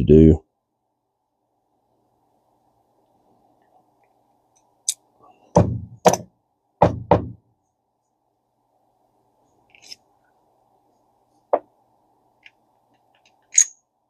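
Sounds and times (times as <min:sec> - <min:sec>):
solid knocks on workbench: 0:05.6 - 0:07.4.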